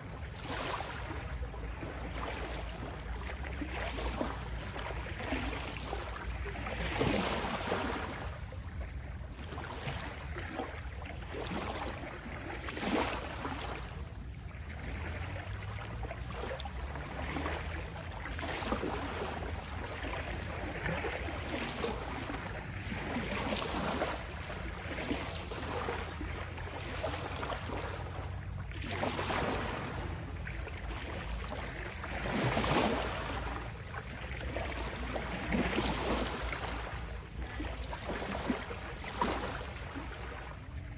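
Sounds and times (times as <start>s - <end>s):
small waves lapping at shore: 0.0s - 40.9s.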